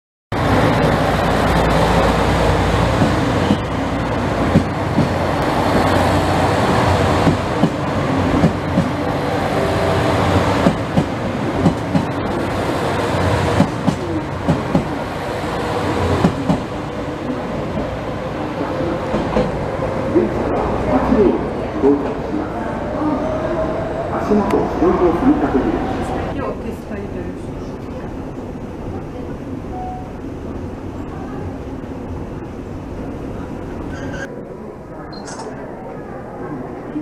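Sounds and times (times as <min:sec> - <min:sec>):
train rumble: 0:00.3 - 0:37.0
train wheel squeals: 0:33.9 - 0:34.3.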